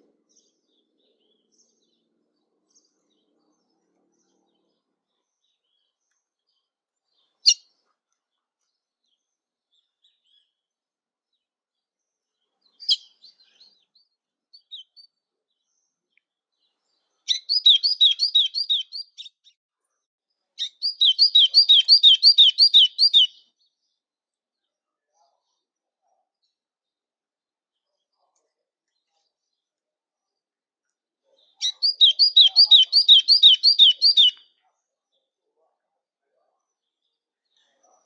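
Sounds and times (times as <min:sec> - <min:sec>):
songbird singing trills: 0:12.7 - 0:15.1, 0:17.3 - 0:19.5, 0:20.6 - 0:23.6, 0:31.4 - 0:34.5.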